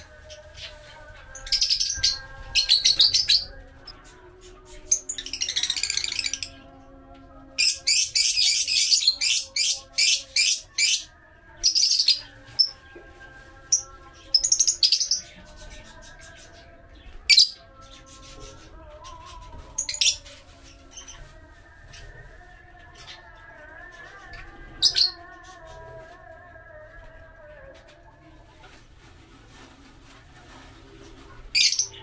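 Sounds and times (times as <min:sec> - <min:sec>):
lovebirds chirping: 0:00.0 - 0:06.8.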